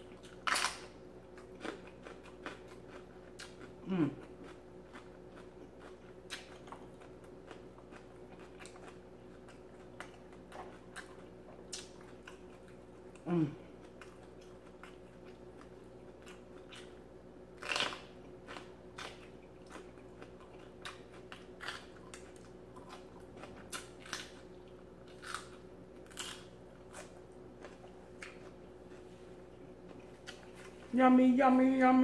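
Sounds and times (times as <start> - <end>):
crunching raw pepper: 0.0 - 29.1.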